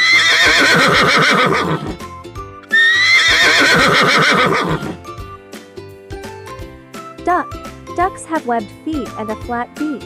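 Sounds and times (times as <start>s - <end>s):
horse whinnying: 0.0s - 2.1s, 2.7s - 5.1s
soft background music: 0.6s - 10.0s.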